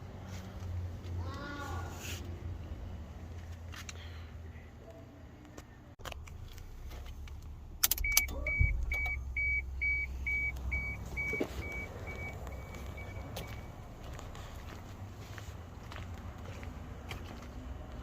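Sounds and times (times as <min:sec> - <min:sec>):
sharp clicks: 0:07.3 - 0:09.2
car warning chime beeps: 0:07.8 - 0:13.8.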